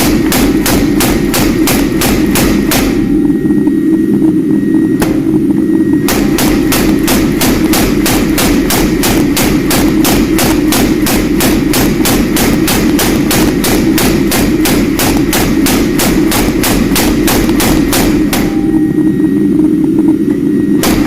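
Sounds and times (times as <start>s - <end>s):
hammer striking steel on anvil: 0.0s - 3.1s, 6.1s - 18.7s
low drone: 0.0s - 21.0s.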